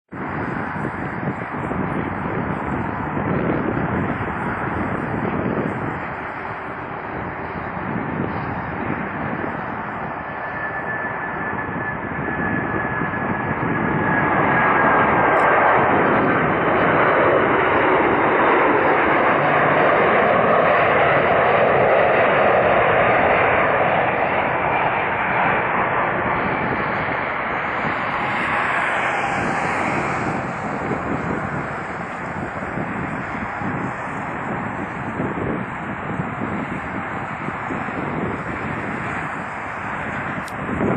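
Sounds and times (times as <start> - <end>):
jet airliner landing: 0.1 - 40.9
high whine sliding down: 27.4 - 34.0.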